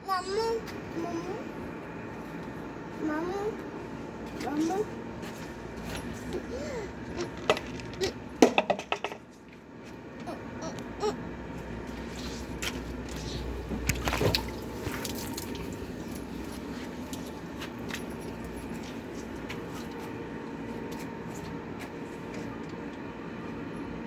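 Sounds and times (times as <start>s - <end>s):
washing machine motor hum: 0.0s - 24.0s
water sloshing in washing machine: 11.8s - 22.8s.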